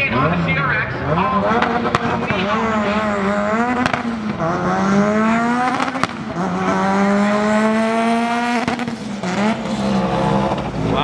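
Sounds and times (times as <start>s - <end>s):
drag car engine accelerating: 0.0s - 11.0s.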